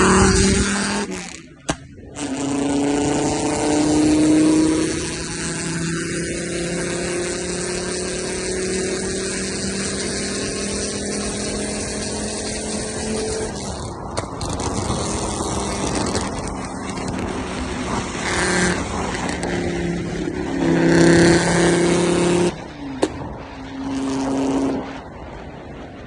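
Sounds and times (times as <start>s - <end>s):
car engine revving: 0.0s - 25.3s
exhaust crack: 0.0s - 26.0s.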